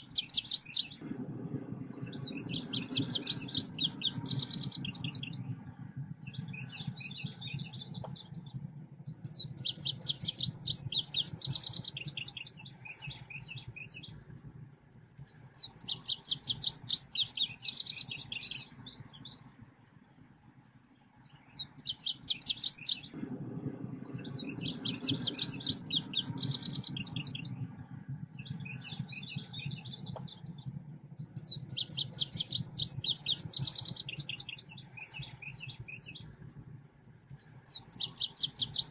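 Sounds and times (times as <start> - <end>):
low hum: 0.0 - 38.9
bird song chattering high notes: 1.9 - 5.5, 24.0 - 27.6, 31.2 - 36.3, 37.4 - 38.9.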